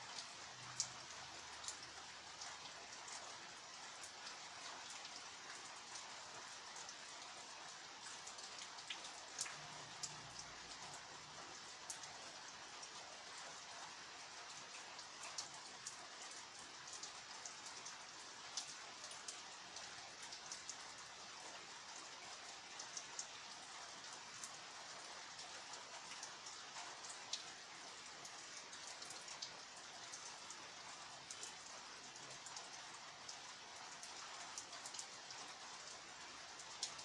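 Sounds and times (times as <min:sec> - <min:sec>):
raindrops ticking on surfaces: 0:00.0 - 0:37.0
steady rain falling: 0:00.0 - 0:37.0.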